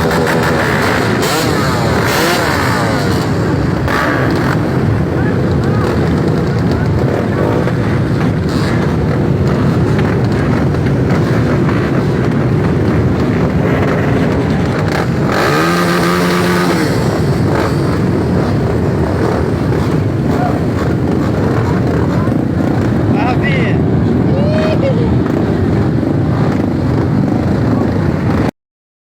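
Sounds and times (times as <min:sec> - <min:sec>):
dirt bike engine running hard: 0:00.0 - 0:28.5.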